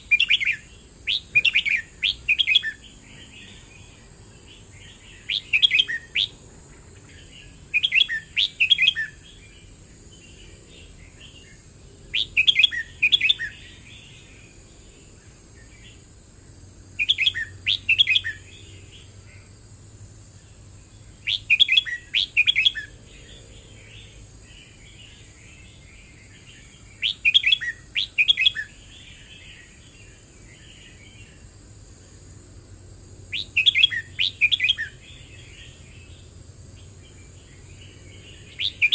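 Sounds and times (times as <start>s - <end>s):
bird singing warbled phrase: 0.0s - 6.4s, 7.1s - 11.5s, 12.1s - 14.4s, 17.0s - 19.1s, 21.2s - 31.2s, 33.3s - 35.8s, 37.2s - 38.9s
soft bird twittering: 0.0s - 16.0s, 17.0s - 19.5s, 20.3s - 31.5s, 33.3s - 38.9s.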